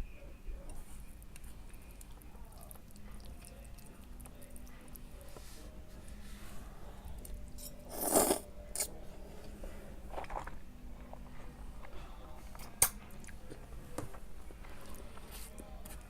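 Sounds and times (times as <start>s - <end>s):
person chewing: 1.3s - 5.0s, 10.1s - 13.5s.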